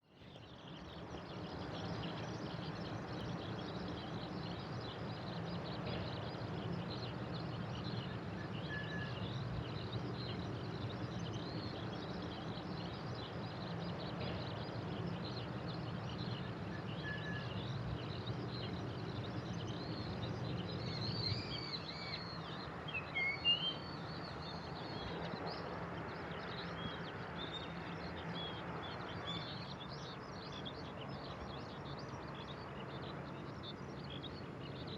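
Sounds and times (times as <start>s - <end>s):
outdoor background noise: 0.0s - 34.9s
small birds chirping: 0.0s - 34.9s.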